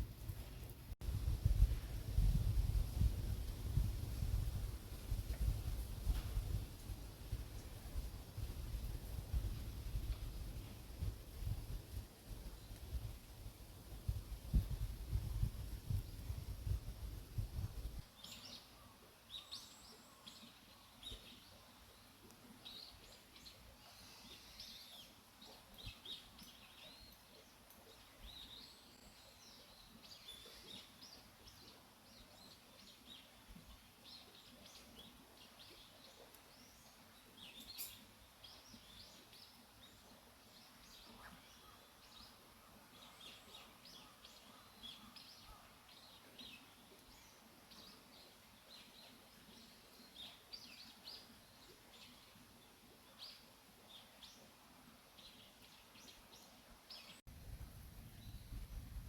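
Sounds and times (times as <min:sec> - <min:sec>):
faint bird chirps: 0:17.6 - 0:52.4.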